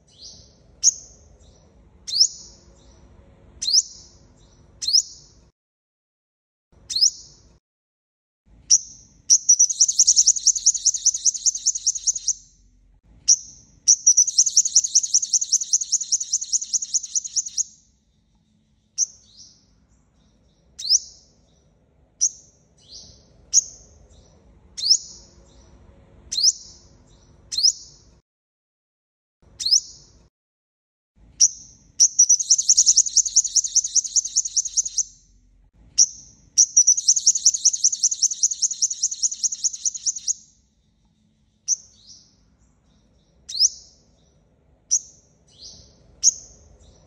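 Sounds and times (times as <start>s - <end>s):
sharp downslurred bird calls: 4.8s - 5.4s, 6.8s - 7.4s, 8.7s - 12.6s, 13.3s - 17.8s, 31.4s - 35.3s, 36.0s - 40.5s, 43.0s - 44.0s
sunbird high-pitched trills: 8.7s - 12.6s, 13.3s - 21.4s, 31.4s - 35.4s, 36.0s - 44.3s.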